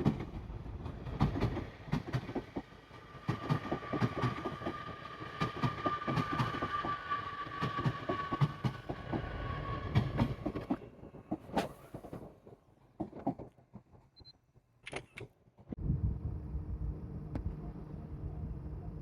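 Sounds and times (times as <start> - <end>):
train wheels clattering on rails: 0.0 - 14.0.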